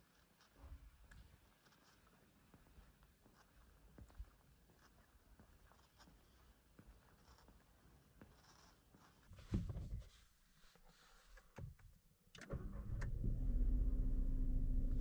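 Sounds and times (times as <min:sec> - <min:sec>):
car engine starting and idling: 0:12.4 - 0:15.0.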